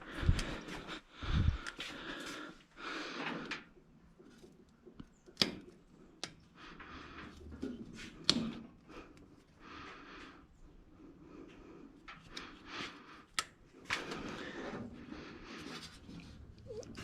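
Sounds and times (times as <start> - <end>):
rustling and scraping on engine parts: 6.7 - 8.7, 13.7 - 17.0.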